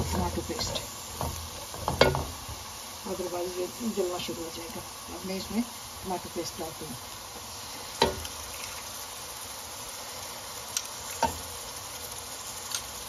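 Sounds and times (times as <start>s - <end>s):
knock on a pan: 0.0s - 2.4s, 8.0s - 8.3s
masala sizzling in oil: 0.0s - 13.0s.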